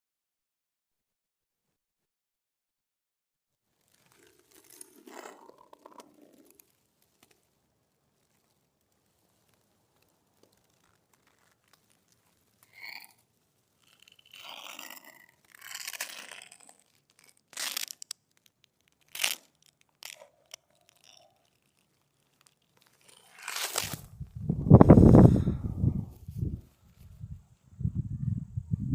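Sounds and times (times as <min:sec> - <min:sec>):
crunching tearing rustles: 0:03.7 - 0:24.2
low rumbling noise: 0:24.0 - 0:28.9.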